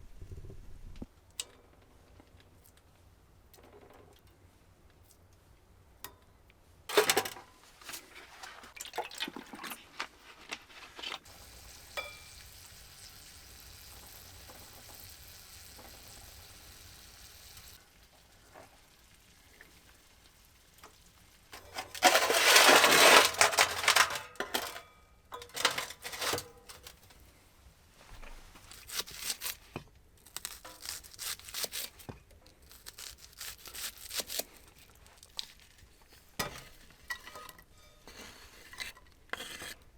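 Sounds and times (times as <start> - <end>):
food sizzling in a pan: 11.2 - 21.5
utensil clinks and scrapes stirring: 12.0 - 12.3, 21.6 - 24.8, 25.4 - 27.0, 36.2 - 39.8.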